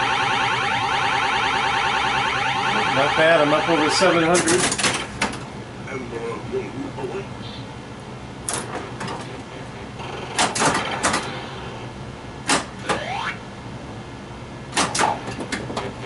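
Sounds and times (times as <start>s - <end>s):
pinball ball knocking and clacking: 14.8s - 16.0s.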